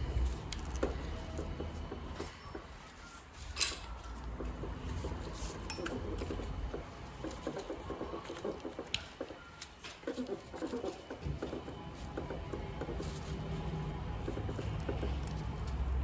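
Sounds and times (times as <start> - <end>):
tools clinking on metal: 3.5 - 4.2, 5.6 - 6.0.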